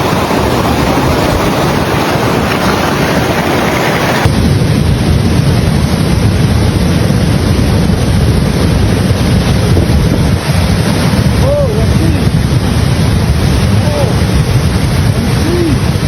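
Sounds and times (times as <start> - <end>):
rushing water: 0.0 - 16.0
wind rumbling on microphone: 0.0 - 16.0.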